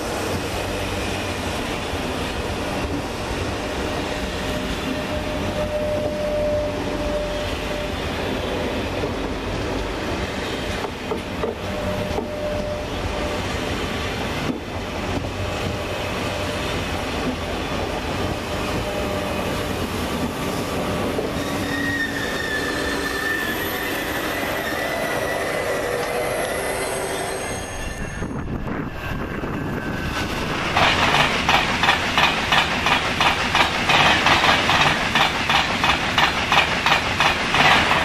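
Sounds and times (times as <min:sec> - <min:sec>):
train wheels rumbling on rail: 0:00.0 - 0:38.0
train wheels squealing: 0:03.6 - 0:08.8, 0:11.6 - 0:13.5, 0:18.4 - 0:38.0.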